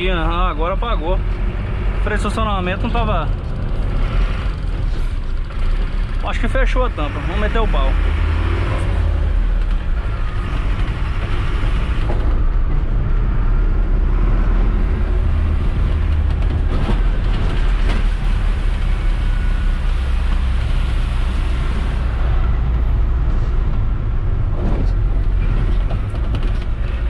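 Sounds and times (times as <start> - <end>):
diesel truck engine drone: 0.0 - 27.0.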